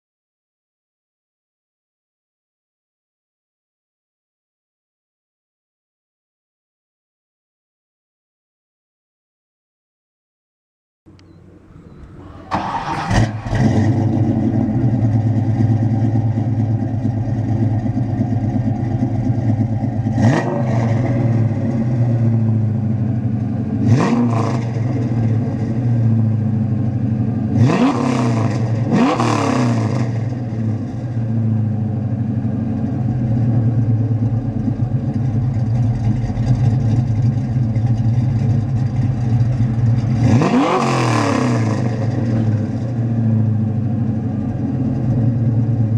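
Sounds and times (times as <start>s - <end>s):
car engine idling and revving: 11.1s - 45.9s.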